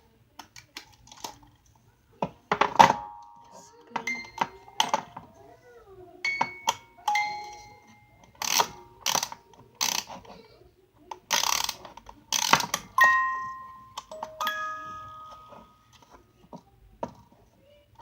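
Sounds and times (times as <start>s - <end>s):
bell-like notes: 13.0s - 16.0s.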